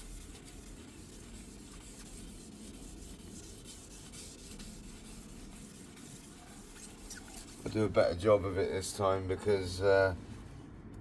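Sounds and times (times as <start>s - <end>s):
sandpaper rubbing: 0.0s - 7.9s.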